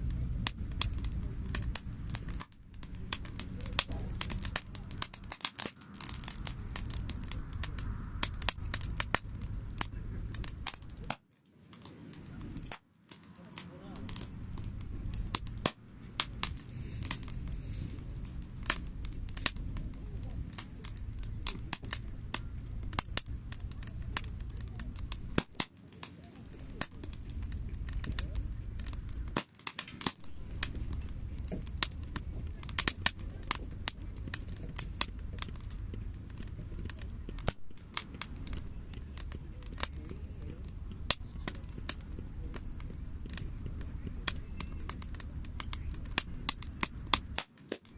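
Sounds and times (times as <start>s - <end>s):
campfire crackling: 0.0s - 47.9s
low fire rumble: 0.0s - 47.9s.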